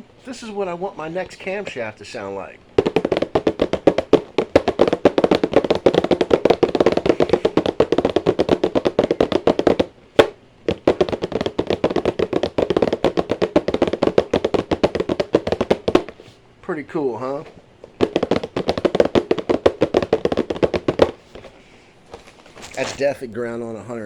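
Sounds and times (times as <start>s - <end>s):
tapping on cardboard box: 2.8s - 16.3s, 17.9s - 22.8s.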